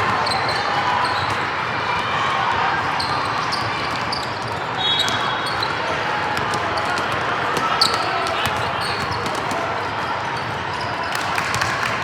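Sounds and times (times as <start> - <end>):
hall chatter: 0.0 - 12.0
shoe squeaks on floor: 3.0 - 5.8, 6.7 - 9.5
basketball bouncing: 6.4 - 9.6.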